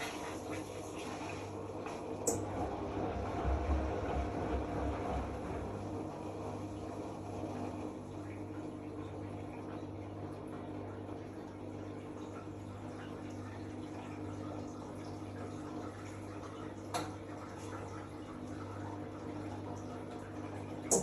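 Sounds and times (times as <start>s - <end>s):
washing machine running: 0.0s - 21.0s.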